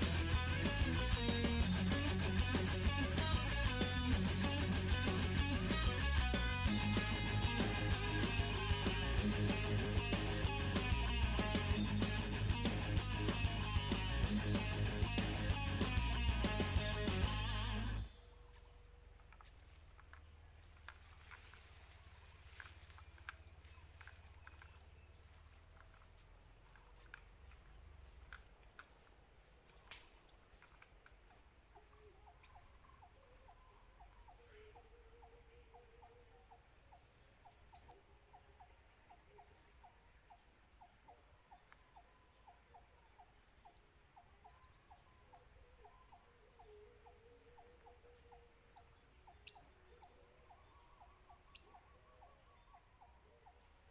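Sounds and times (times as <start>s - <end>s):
regular ticking: 0.0s - 18.1s
insects trilling: 0.0s - 53.9s.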